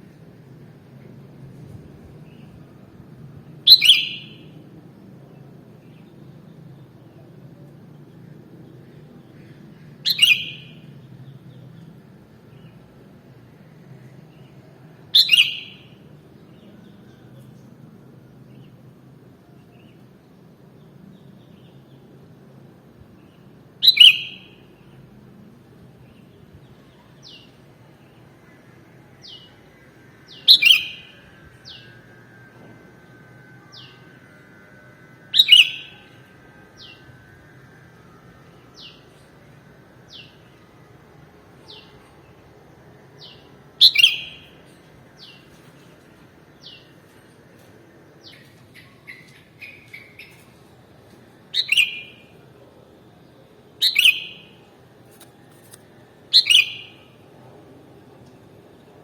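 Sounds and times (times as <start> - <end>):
low steady background hum: 0.0 - 59.0
bulbul loud sharp calls: 53.8 - 54.6, 56.3 - 57.0.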